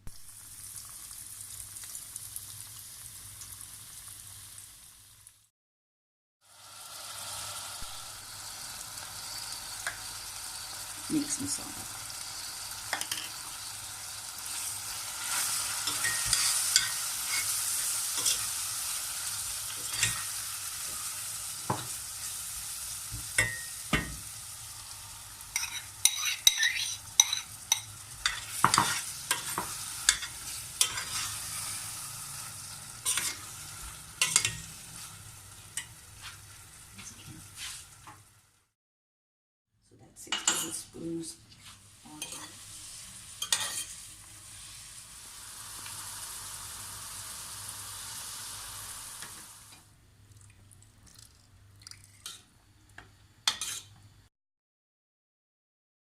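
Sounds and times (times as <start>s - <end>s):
food sizzling in a pot: 0.0s - 5.5s, 6.4s - 38.8s, 40.3s - 50.0s, 52.2s - 54.3s
spoon scraping a pot: 12.9s - 13.5s, 15.2s - 17.6s, 18.2s - 18.5s, 19.8s - 20.3s, 25.5s - 31.8s, 33.0s - 33.5s, 43.4s - 44.0s, 53.5s - 53.9s.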